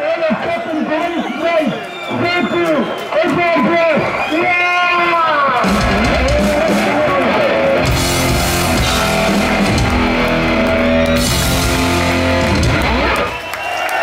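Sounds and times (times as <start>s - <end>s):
heavy metal band playing live: 4.8s - 13.4s.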